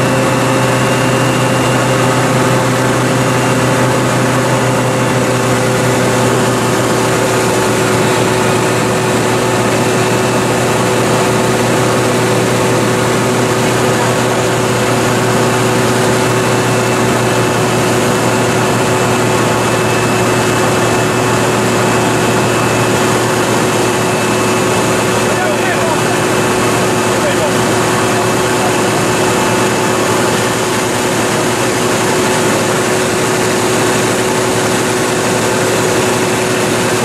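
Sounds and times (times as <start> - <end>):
vehicle engine drone: 0.0 - 37.0
whining tones: 0.0 - 37.0.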